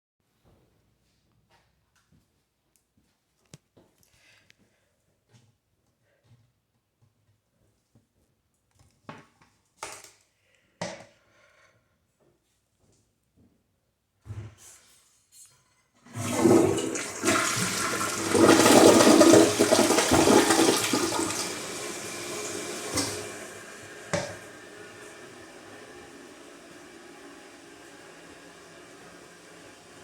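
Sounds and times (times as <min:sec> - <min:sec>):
toilet flushing: 0:16.0 - 0:30.0
knocks in toilet: 0:22.8 - 0:23.2, 0:24.1 - 0:24.4.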